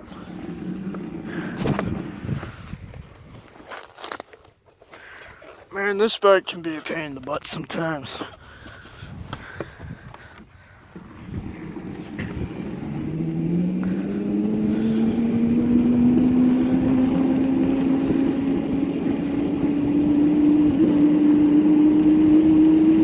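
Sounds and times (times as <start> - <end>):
dirt bike engine accelerating: 0.0 - 3.0, 10.9 - 23.0.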